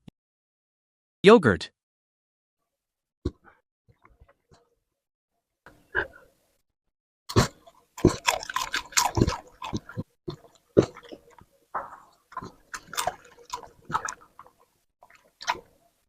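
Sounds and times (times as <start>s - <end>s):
dog chewing and slurping food: 7.3s - 15.8s.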